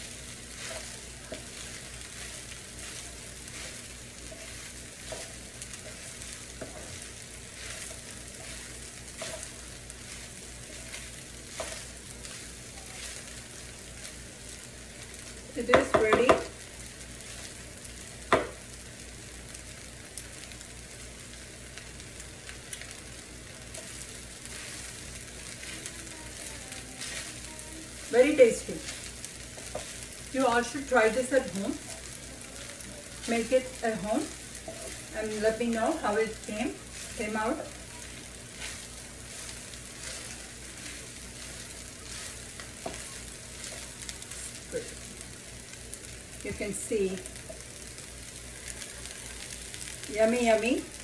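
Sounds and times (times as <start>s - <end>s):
rice sizzling in a skillet: 0.0s - 51.0s
wooden spatula scraping: 0.1s - 14.2s, 23.7s - 32.1s, 32.8s - 45.0s.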